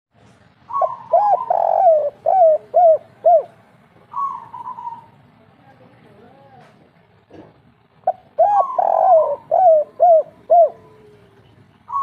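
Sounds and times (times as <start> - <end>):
dove cooing: 0.7 - 5.2, 8.0 - 12.0.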